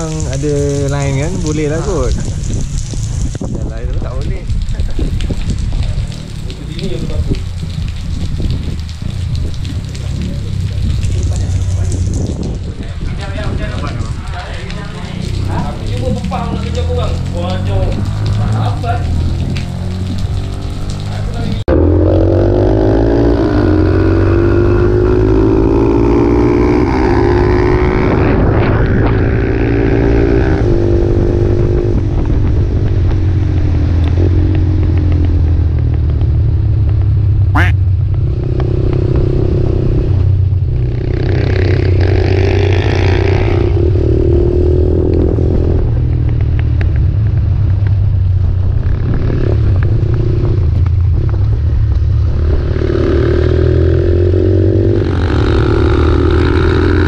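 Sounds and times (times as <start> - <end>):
motorcycle engine revving: 13.5 - 57.0.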